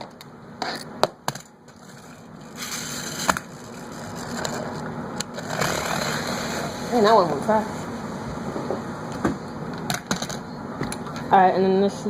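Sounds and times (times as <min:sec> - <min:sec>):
toy car wheels whirring: 0:01.8 - 0:06.8.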